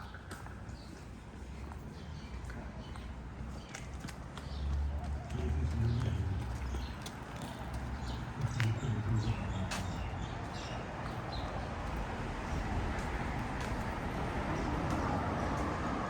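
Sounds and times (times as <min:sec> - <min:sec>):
vehicle engine and tyre noise: 0:03.5 - 0:16.0
small birds chirping: 0:05.7 - 0:12.6.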